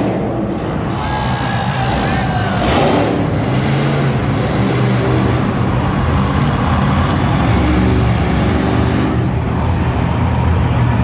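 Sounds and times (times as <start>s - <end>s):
monster truck engine running: 0.0s - 11.0s.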